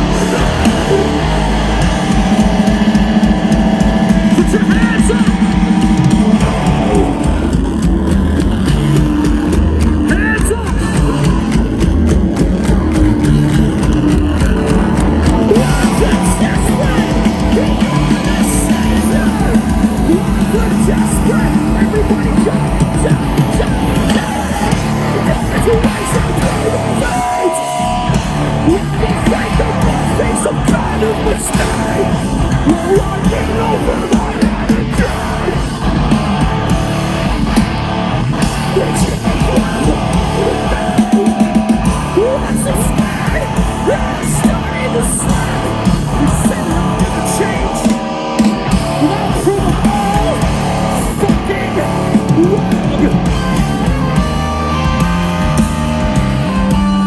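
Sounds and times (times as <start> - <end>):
heavy rock band playing live: 0.0 - 57.0
person yelling vocals: 12.7 - 35.7.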